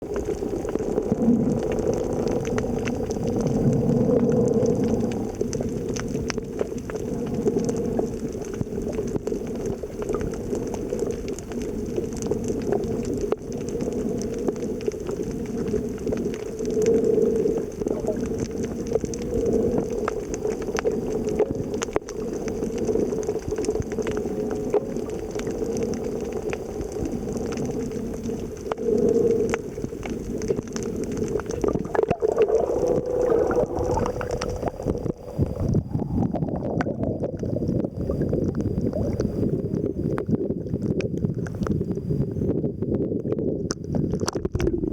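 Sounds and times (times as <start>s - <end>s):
underwater rushing and bubbling: 0.0s - 44.9s
faint clicks: 0.1s - 35.1s.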